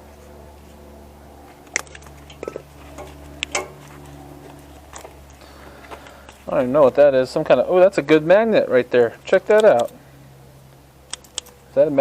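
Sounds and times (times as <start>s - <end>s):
steady low hum: 0.0s - 12.0s
clicks of small parts handled: 11.1s - 11.6s.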